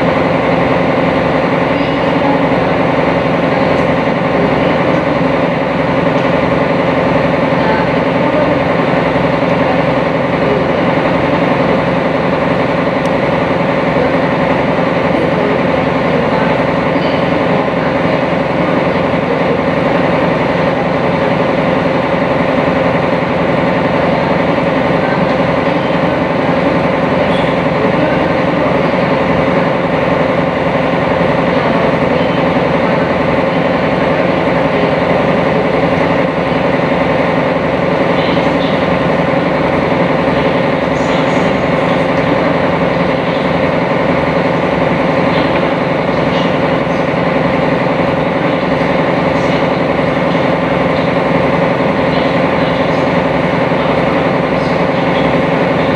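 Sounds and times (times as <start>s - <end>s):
boat engine hum: 0.0s - 55.9s.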